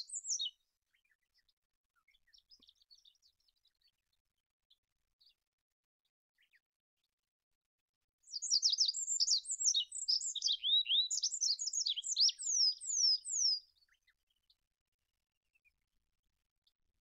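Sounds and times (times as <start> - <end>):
pipit singing: 0.0 - 0.5, 8.3 - 13.6.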